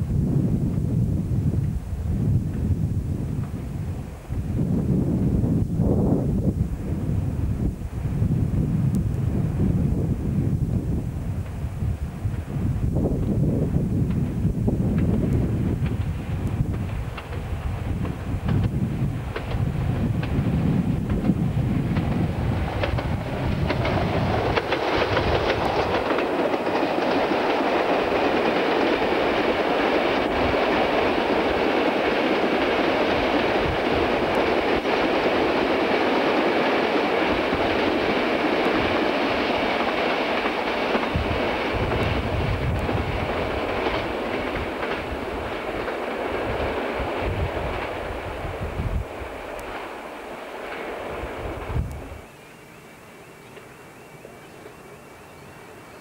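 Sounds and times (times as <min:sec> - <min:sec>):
wind buffeting microphone: 0:00.0 - 0:52.4
diesel locomotives passing: 0:00.0 - 0:56.0
wagon wheels clattering over rail joints: 0:21.0 - 0:29.3.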